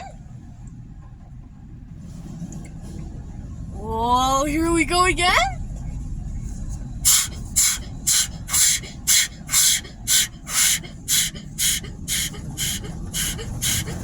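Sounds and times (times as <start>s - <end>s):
low rumble: 0.0s - 14.0s
car wash brushes swishing: 7.1s - 14.0s.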